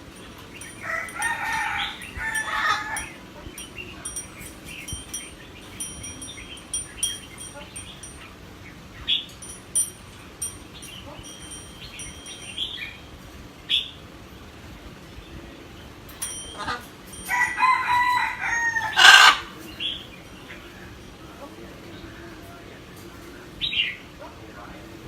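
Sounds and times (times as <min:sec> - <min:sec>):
parrot chirping and squawking: 0:00.2 - 0:08.2, 0:16.5 - 0:17.0, 0:17.6 - 0:20.0.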